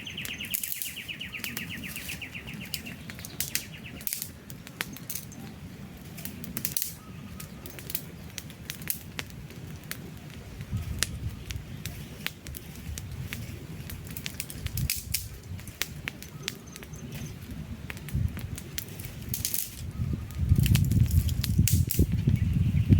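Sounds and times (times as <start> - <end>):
bird trilling: 0.0 - 4.1
fire hiss: 0.0 - 7.0, 7.6 - 19.9, 20.5 - 22.7
campfire crackling and popping: 0.0 - 22.9
rush of flames: 0.0 - 22.9.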